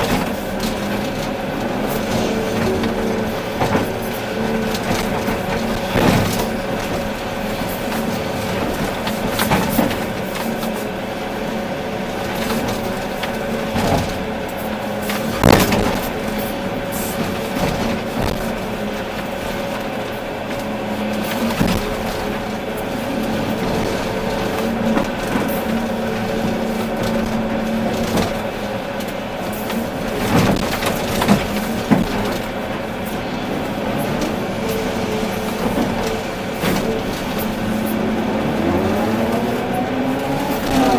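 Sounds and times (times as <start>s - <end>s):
sharp knocks and clanks: 0.0s - 10.7s
excavator diesel engine running: 0.0s - 40.9s.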